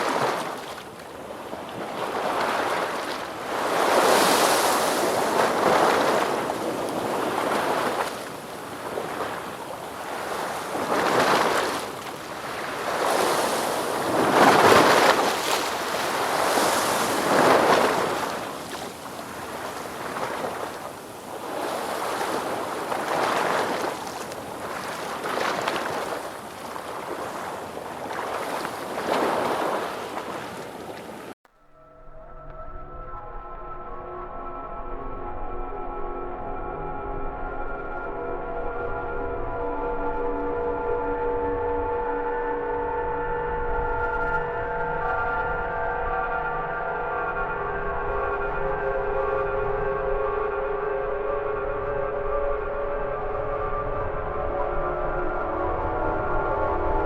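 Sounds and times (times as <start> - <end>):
ocean waves breaking: 0.0 - 31.4.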